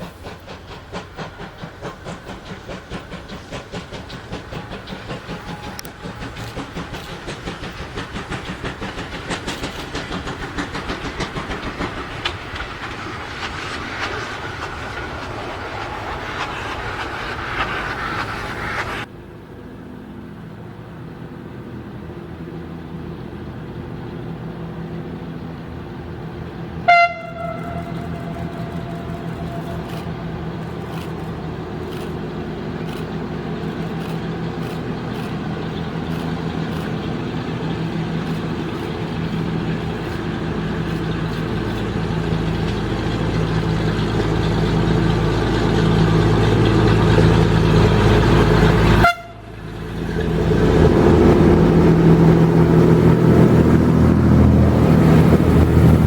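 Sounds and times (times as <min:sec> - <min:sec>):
diesel train engine droning: 0:00.0 - 0:56.0
train horn toot: 0:26.8 - 0:30.3, 0:48.9 - 0:49.7.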